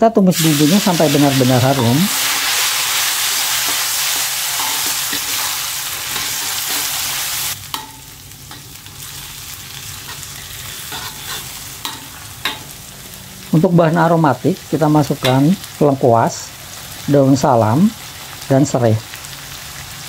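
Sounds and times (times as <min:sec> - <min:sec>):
food sizzling in hot oil: 0:00.3 - 0:20.0
metal spatula scraping wok: 0:00.5 - 0:09.2, 0:09.8 - 0:12.8.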